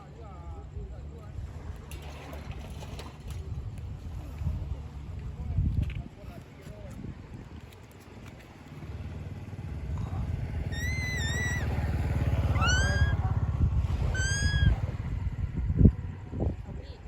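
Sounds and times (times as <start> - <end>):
cat meowing: 10.7 - 11.7, 12.5 - 13.2, 14.1 - 14.8.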